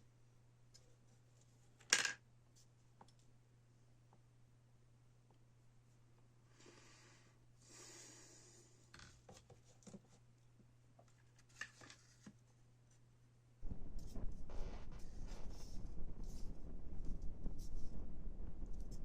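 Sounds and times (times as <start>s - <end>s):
faint rubbing and scraping: 13.6s - 19.0s.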